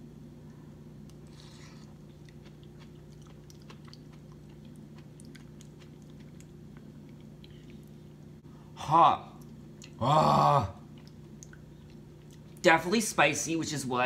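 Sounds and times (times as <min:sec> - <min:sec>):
person chewing: 0:01.0 - 0:08.3, 0:09.4 - 0:10.0, 0:10.8 - 0:12.6
wet mouth clicks: 0:11.0 - 0:12.5.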